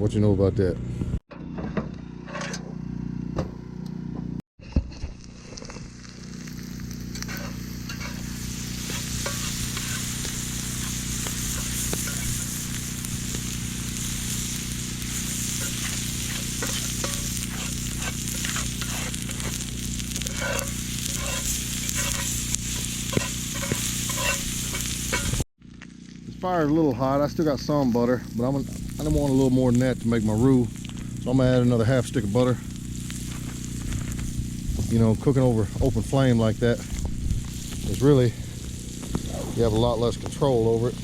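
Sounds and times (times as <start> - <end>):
vegetables sizzling in a pan: 5.6 - 25.5, 28.6 - 41.0
utensil stirring and tapping in pan: 8.8 - 13.5, 15.0 - 25.4.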